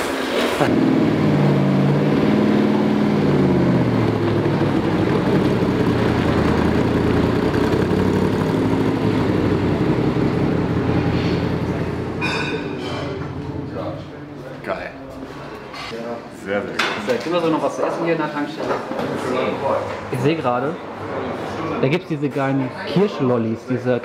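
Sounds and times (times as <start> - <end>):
car engine running: 0.4 - 14.1.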